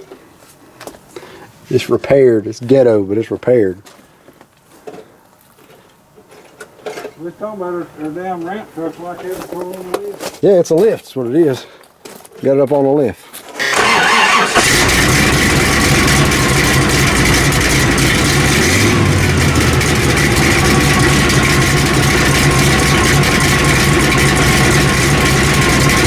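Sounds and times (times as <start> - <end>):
truck engine idling: 13.6 - 26.0.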